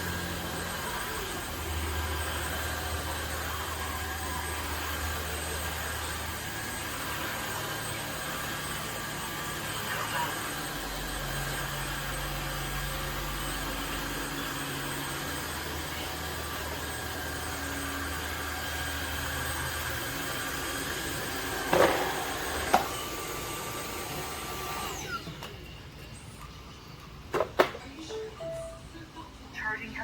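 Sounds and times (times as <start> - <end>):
motor winding down whine: 0.0 - 25.5
vacuum cleaner running: 0.0 - 25.6.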